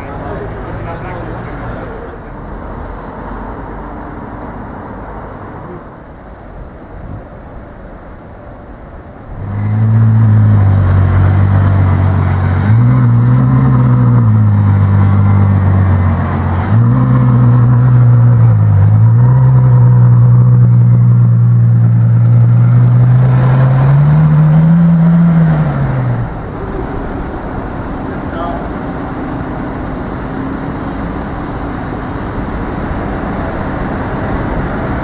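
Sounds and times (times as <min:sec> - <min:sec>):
car engine deep exhaust note: 0:09.3 - 0:26.4.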